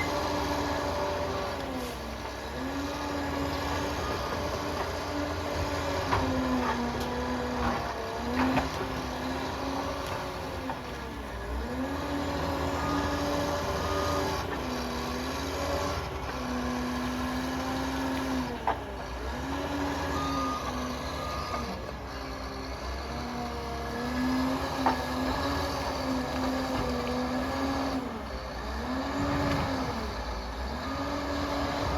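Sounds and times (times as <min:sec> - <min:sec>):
dozer engine whine and rumble: 0:00.0 - 0:31.9.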